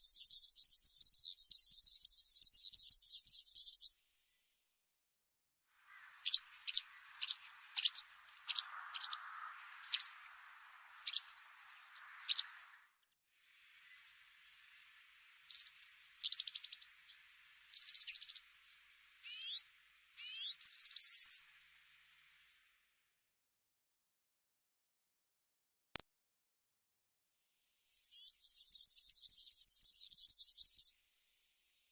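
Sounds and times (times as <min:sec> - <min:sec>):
small bird chirping and trilling: 0:00.0 - 0:04.0, 0:05.3 - 0:12.8, 0:13.8 - 0:22.8, 0:27.9 - 0:30.9.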